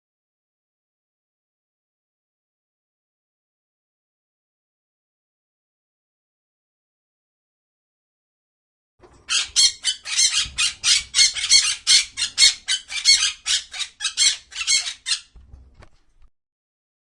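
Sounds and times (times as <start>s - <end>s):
bird squawking: 9.3s - 15.4s.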